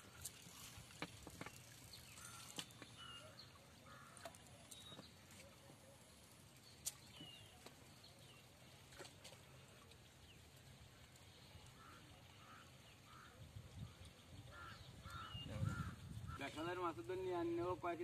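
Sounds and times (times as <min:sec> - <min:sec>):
faint bird calls: 0:02.1 - 0:06.0, 0:11.5 - 0:16.9.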